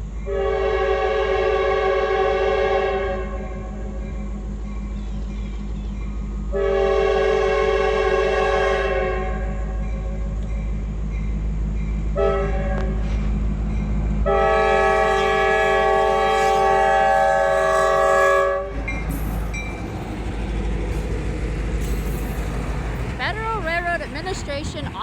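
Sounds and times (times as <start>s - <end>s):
passing train rumble: 0.0s - 25.0s
locomotive air horn blasts: 0.3s - 3.8s, 6.5s - 9.8s, 12.2s - 13.1s, 14.2s - 18.9s.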